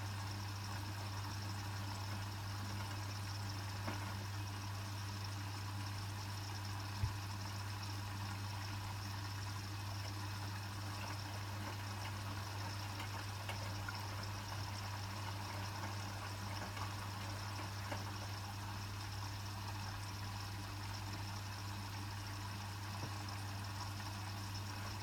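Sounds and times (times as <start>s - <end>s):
water flowing in washing machine: 0.0s - 25.0s
faint ticks: 10.0s - 18.5s.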